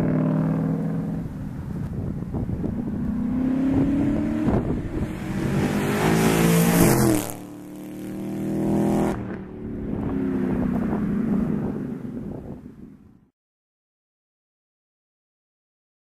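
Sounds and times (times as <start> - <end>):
car engine accelerating hard: 0.0 - 12.6.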